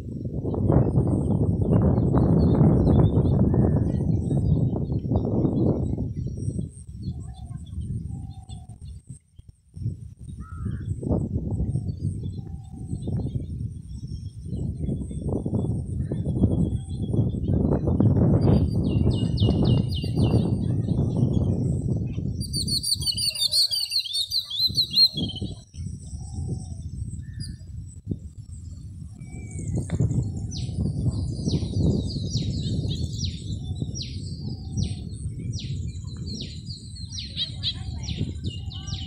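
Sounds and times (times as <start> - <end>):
rapid high bird chattering: 22.4 - 25.6.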